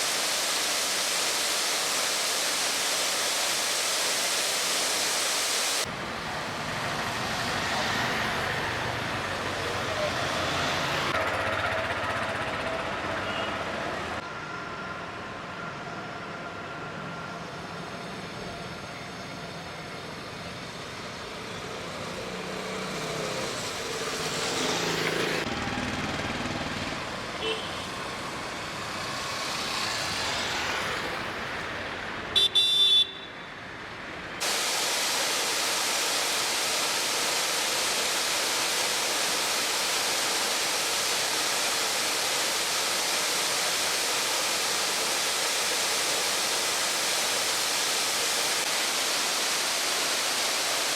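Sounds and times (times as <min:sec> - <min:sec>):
waterfall rushing: 0:00.0 - 0:05.9, 0:34.4 - 0:50.9
road traffic passing: 0:05.8 - 0:34.5
vehicle horn honking: 0:27.4 - 0:27.9, 0:32.4 - 0:33.3.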